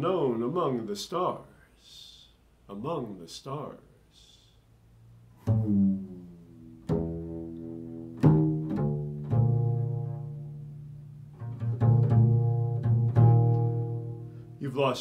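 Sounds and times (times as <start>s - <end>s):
low plucked string notes: 5.2s - 14.6s.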